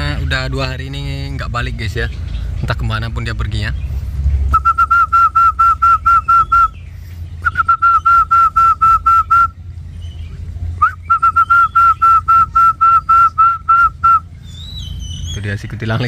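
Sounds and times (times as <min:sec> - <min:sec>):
bird whistling rapid notes: 0:04.5 - 0:15.6.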